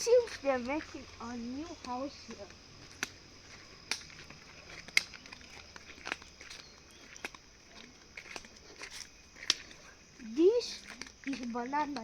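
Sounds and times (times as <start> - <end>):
crunching footsteps on forest path: 0.0 - 12.0.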